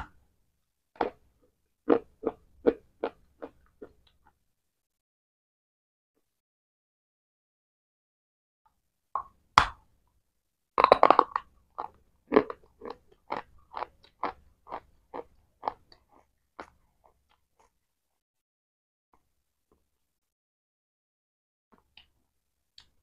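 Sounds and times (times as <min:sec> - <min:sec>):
chewing crunches: 0:01.9 - 0:04.1, 0:10.8 - 0:17.8.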